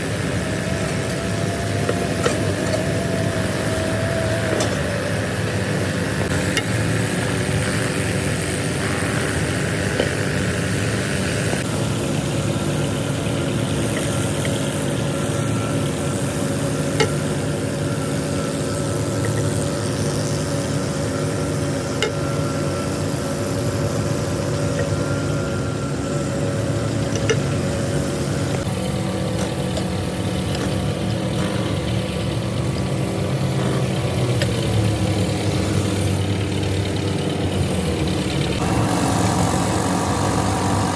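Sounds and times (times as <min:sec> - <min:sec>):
tractor engine idling: 0:00.0 - 0:40.9.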